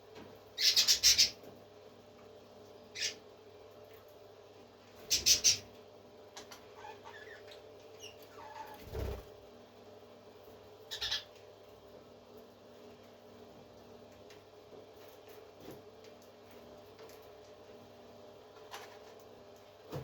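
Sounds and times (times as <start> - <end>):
parrot squawking: 0.6 - 1.4, 2.9 - 3.2, 5.1 - 5.6, 10.9 - 11.3.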